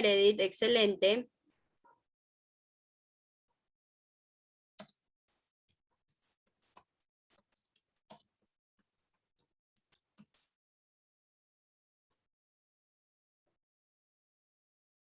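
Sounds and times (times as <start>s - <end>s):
faint irregular clicks and taps: 4.8s - 10.6s.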